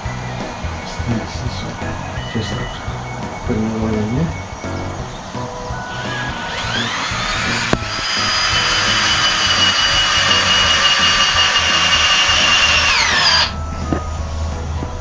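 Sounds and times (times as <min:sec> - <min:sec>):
power drill whining: 0:05.1 - 0:14.2.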